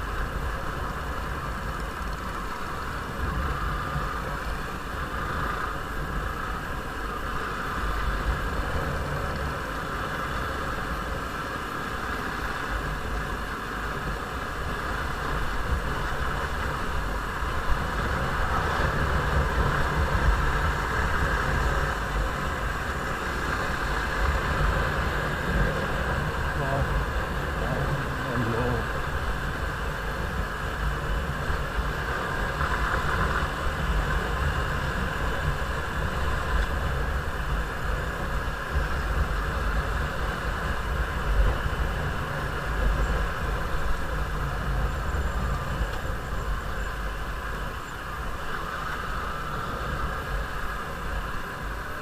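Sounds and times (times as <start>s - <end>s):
wind and road noise: 0.0s - 52.0s.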